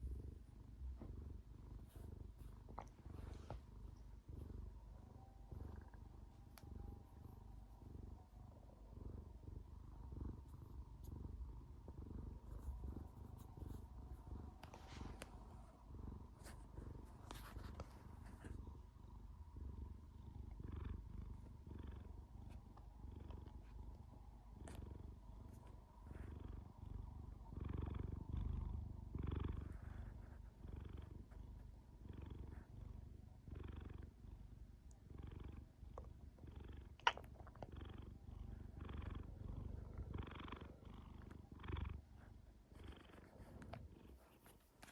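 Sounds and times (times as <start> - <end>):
cat purring: 0.0 - 44.9.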